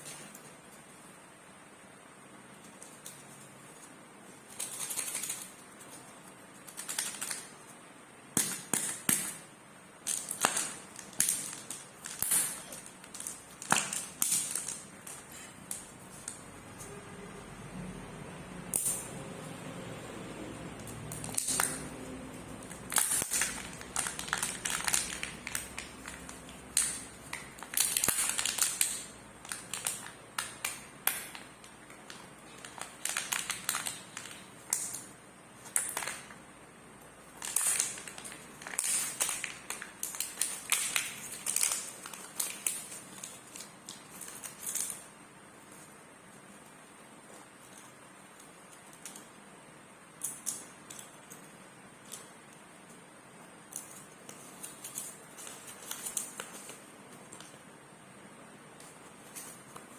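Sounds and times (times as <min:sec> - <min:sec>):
wrappers crinkling: 0:02.8 - 0:07.6, 0:20.8 - 0:36.4, 0:37.3 - 0:45.1, 0:53.8 - 0:57.6.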